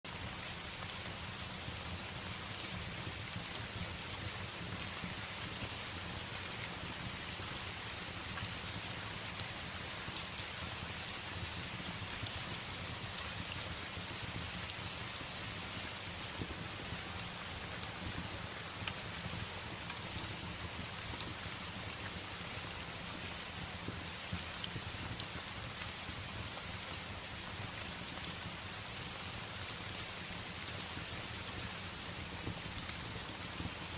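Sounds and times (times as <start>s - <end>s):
rain beating on a window: 0.0s - 33.9s
fireplace crackles: 0.1s - 33.9s.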